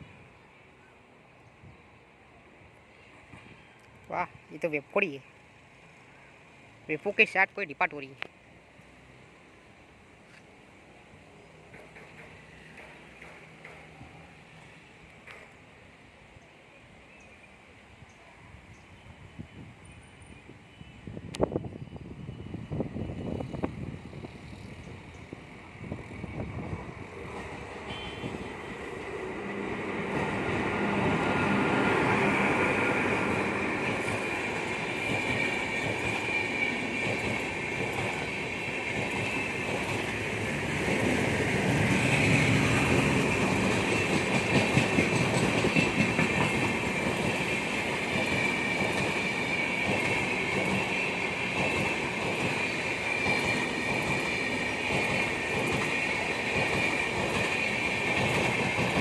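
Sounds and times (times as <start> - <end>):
train wheels clacking: 11.6 - 14.2, 30.0 - 59.0.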